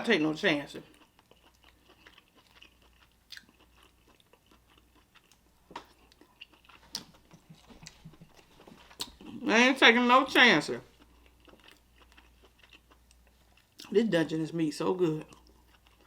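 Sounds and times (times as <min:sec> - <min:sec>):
faint chewing: 0:00.8 - 0:09.5, 0:10.8 - 0:14.0, 0:15.2 - 0:16.0.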